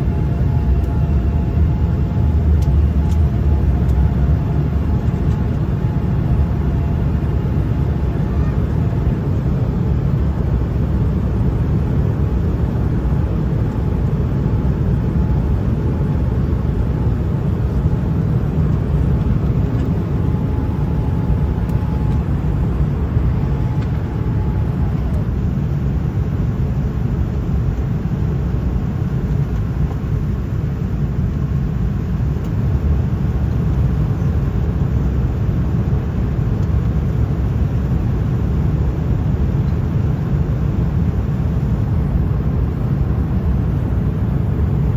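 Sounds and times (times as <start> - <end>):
airliner engines and airflow rush: 0.0 - 44.9.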